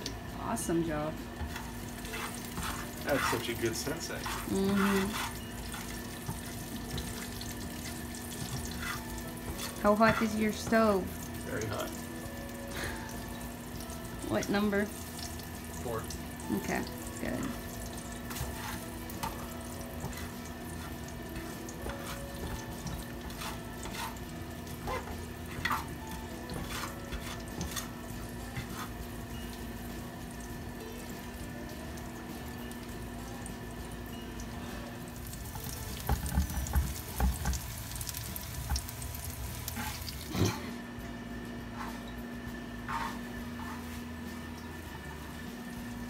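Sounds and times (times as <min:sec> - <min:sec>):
food sizzling in oil: 0:00.0 - 0:40.5
spatula clicking and scraping: 0:01.4 - 0:11.0, 0:18.0 - 0:29.0.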